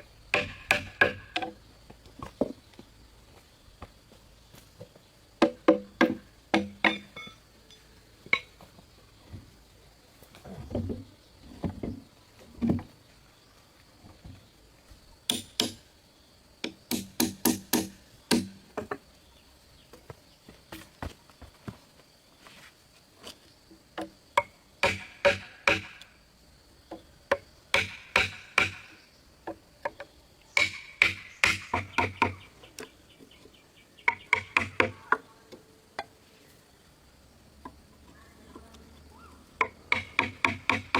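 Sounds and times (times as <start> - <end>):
hand tools knocking on wood: 0.3 - 1.6, 5.4 - 7.4, 16.6 - 19.0, 24.0 - 26.0, 26.9 - 32.4, 34.0 - 35.2, 39.6 - 40.9
wood knocks and thuds: 0.3 - 1.6, 4.8 - 7.3, 10.5 - 13.0, 16.7 - 19.0.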